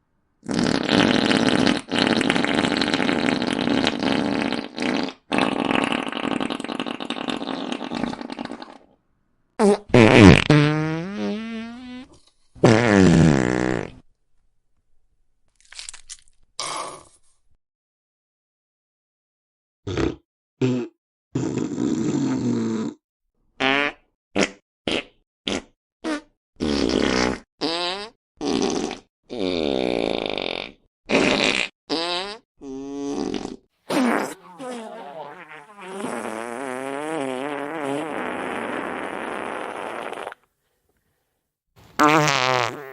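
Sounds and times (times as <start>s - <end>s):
pitched fart sliding down: 0.4s - 8.8s, 9.6s - 14.0s, 30.2s - 40.4s, 42.0s - 42.9s
long rough fart: 0.4s - 9.0s, 9.6s - 14.0s, 19.9s - 23.0s, 23.6s - 40.5s, 42.0s - 42.9s.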